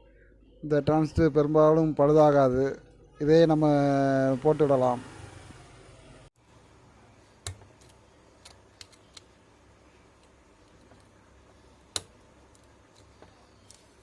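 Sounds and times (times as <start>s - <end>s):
light clicks and taps of tools: 10.1s - 14.0s.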